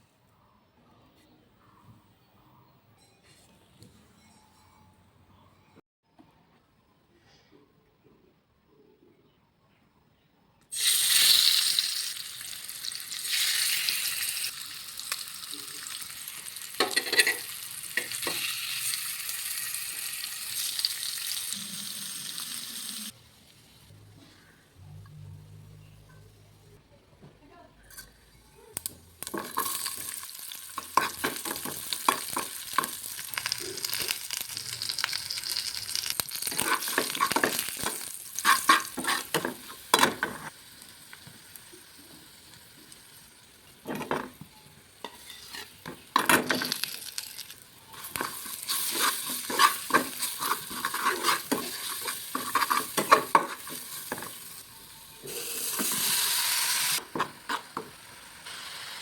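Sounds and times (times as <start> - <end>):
food sizzling in a frying pan: 10.7 - 23.9, 29.2 - 59.0
utensil scraping and tapping pan: 48.0 - 54.4.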